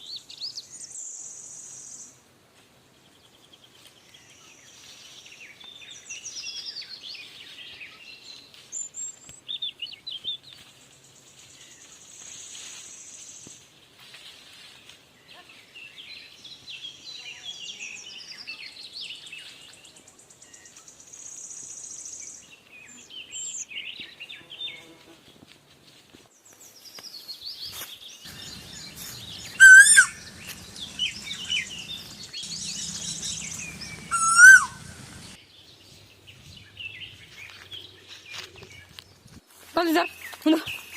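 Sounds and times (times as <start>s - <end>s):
small birds chirping and twittering: 0.0s - 2.2s, 2.9s - 13.9s, 14.8s - 25.4s, 26.3s - 40.9s
loud wavering bird call: 28.3s - 35.4s.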